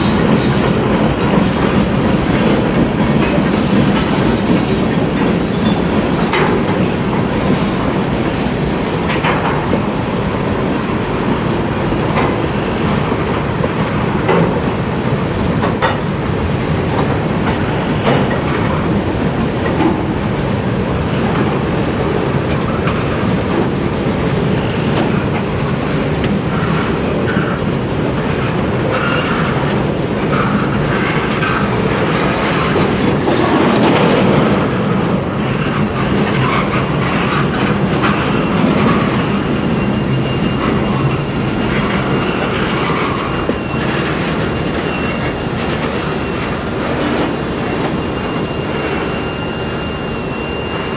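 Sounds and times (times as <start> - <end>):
wheel squeal: 0.0 - 8.6, 28.3 - 50.9
train wheels rumbling on rail: 0.0 - 50.9.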